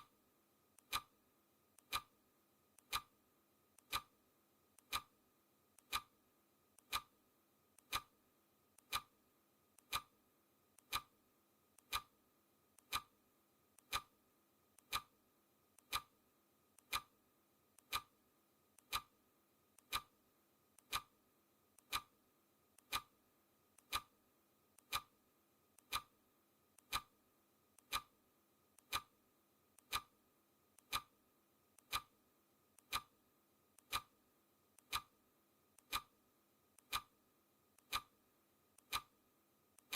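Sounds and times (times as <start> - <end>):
clock ticking: 0.8 - 1.2, 1.8 - 2.1, 2.8 - 3.1, 3.8 - 4.2, 4.8 - 5.2, 5.8 - 6.2, 6.8 - 7.1, 7.8 - 8.1, 8.8 - 9.2, 9.8 - 10.2, 10.8 - 11.1, 11.8 - 12.2, 12.8 - 13.1, 13.8 - 14.1, 14.8 - 15.1, 15.8 - 16.2, 16.8 - 17.2, 17.8 - 18.2, 18.8 - 19.2, 19.8 - 20.2, 20.8 - 21.2, 21.8 - 22.2, 22.8 - 23.2, 23.8 - 24.2, 24.8 - 25.2, 25.8 - 26.2, 26.8 - 27.1, 27.8 - 28.2, 28.8 - 29.2, 29.8 - 30.2, 30.8 - 31.1, 31.8 - 32.2, 32.8 - 33.2, 33.8 - 34.2, 34.8 - 35.2, 35.8 - 36.2, 36.8 - 37.2, 37.8 - 38.2, 38.8 - 39.2.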